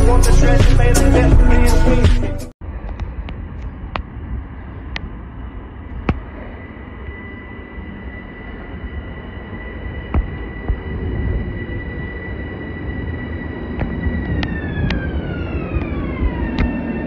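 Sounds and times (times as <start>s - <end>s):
music: 0.0s - 2.6s
high-pitched train whine: 2.6s - 17.0s
train rumble: 2.6s - 17.0s.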